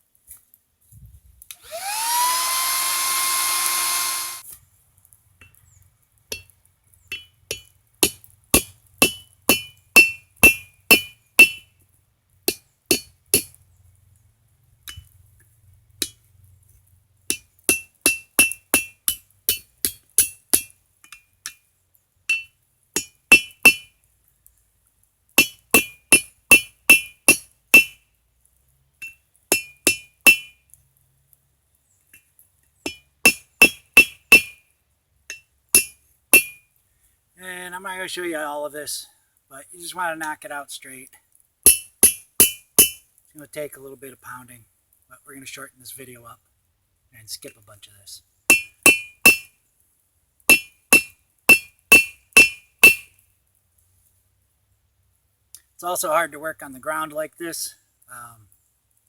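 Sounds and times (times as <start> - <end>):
whirring hiss: 1.5 - 4.4.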